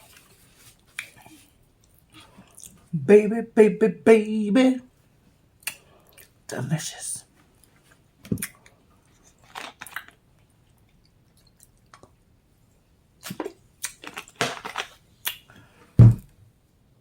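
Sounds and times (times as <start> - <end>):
wet chewing sounds: 8.4 - 12.2
low thump: 16.0 - 16.3.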